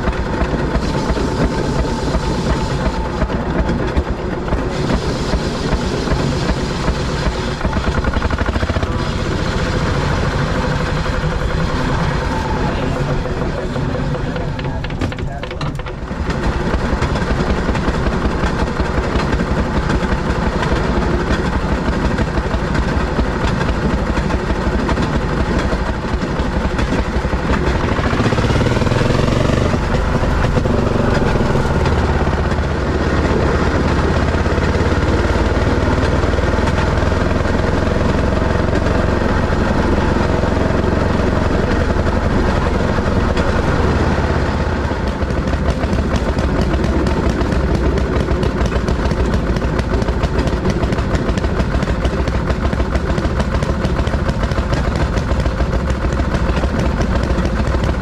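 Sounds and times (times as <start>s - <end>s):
fast ticking clatter on track: 0.0s - 58.0s
small engine drone: 0.0s - 58.0s
brief rising whine: 0.6s - 14.2s.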